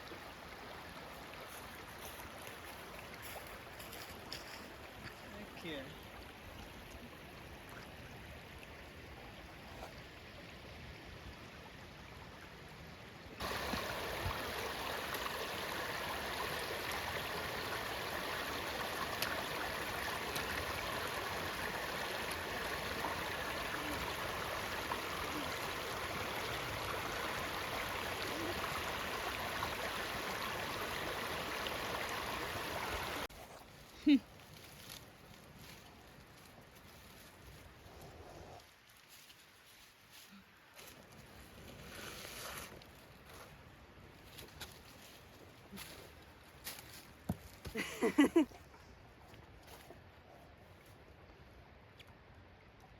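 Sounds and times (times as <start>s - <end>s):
creek water rushing: 0.0s - 33.9s.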